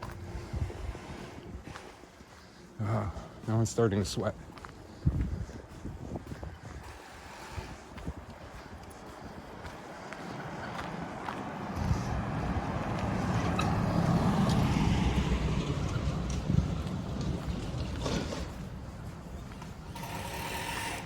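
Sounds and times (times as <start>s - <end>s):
road vehicle passing: 0.0s - 3.2s, 5.5s - 21.0s.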